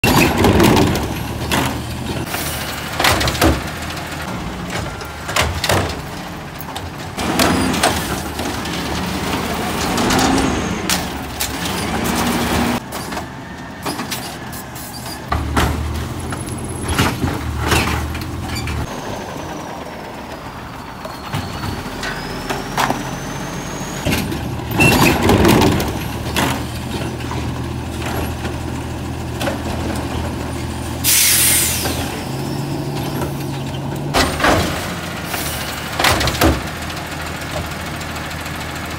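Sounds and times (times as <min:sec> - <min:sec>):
carts banging against hopper: 0:00.0 - 0:14.4, 0:15.1 - 0:18.9, 0:24.0 - 0:28.7, 0:33.0 - 0:35.1, 0:35.9 - 0:36.8
truck engine hum: 0:00.0 - 0:38.9.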